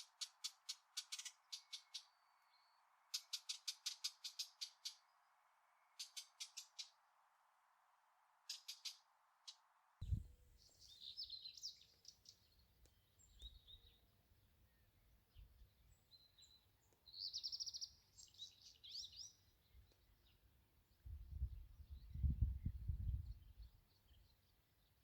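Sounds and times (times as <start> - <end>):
bird trill: 0.0 - 5.2, 5.8 - 7.0, 8.5 - 14.0, 16.1 - 19.4
songbirds chirping and singing: 0.1 - 5.2, 5.8 - 7.0, 10.0 - 25.0
low wind rumble: 10.0 - 10.4, 20.9 - 23.8.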